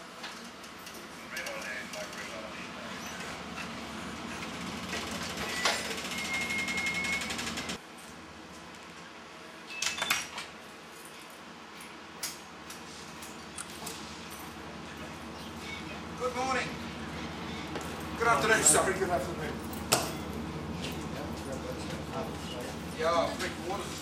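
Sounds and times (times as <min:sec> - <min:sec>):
train carriages rolling past: 0:00.0 - 0:07.8, 0:12.8 - 0:24.0
station ambience: 0:00.0 - 0:09.7, 0:12.5 - 0:24.0.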